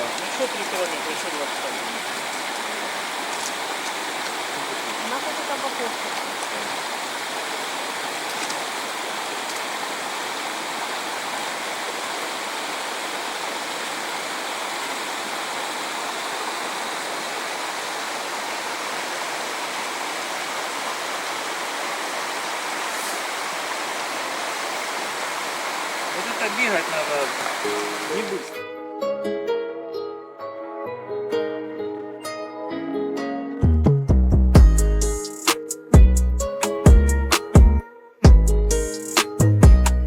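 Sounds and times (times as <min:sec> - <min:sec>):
stream water rushing: 0:00.0 - 0:28.6.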